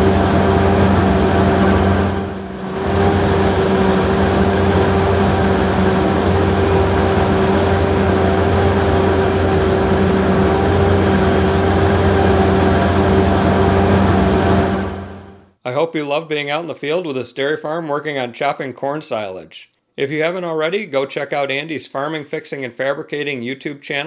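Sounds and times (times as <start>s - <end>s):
diesel engine running: 0.0s - 15.5s.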